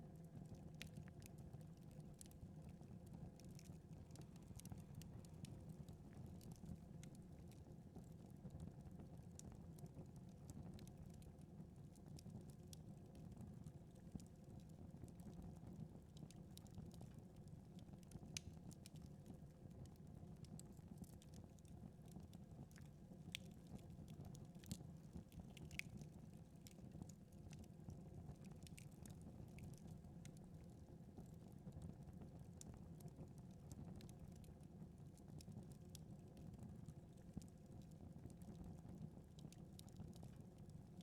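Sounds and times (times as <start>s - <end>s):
wood fire crackling: 3.1s - 8.0s, 18.2s - 19.1s, 21.4s - 27.8s, 28.4s - 30.4s.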